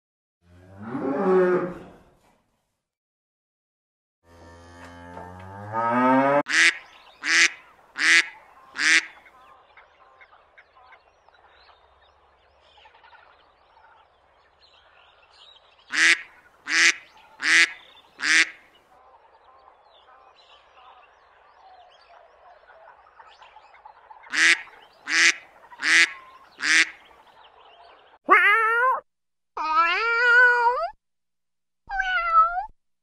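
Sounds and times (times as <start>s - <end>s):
duck quacking: 6.5s - 9.5s, 15.9s - 18.6s, 24.3s - 27.1s
cat meowing: 28.3s - 29.0s, 29.6s - 31.0s, 31.9s - 32.7s.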